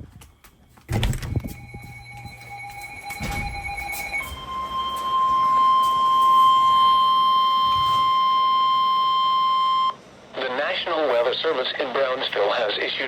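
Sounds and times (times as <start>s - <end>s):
loud steady alarm tone: 0.9s - 10.0s.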